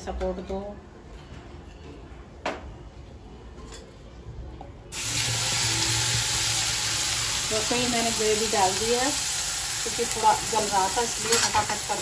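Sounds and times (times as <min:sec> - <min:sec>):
loud steady sizzle in pan: 0:04.9 - 0:12.0.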